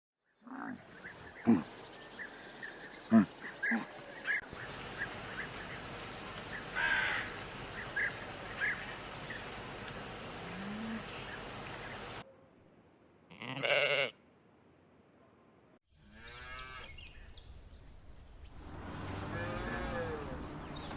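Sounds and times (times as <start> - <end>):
insect trill: 1.3 - 12.2
louder animal calls: 4.6 - 12.2, 18.7 - 20.9.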